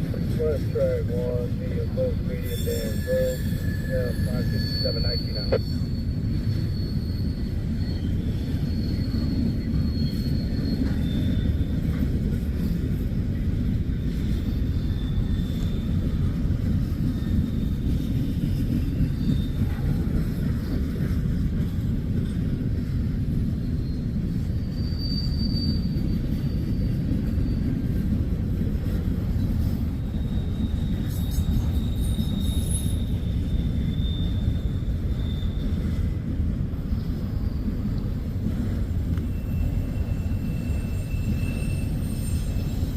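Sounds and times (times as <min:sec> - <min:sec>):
train wheels rumbling on rail: 0:00.0 - 0:42.9
high wheel squeals: 0:00.1 - 0:13.0, 0:14.0 - 0:21.0, 0:23.3 - 0:42.9.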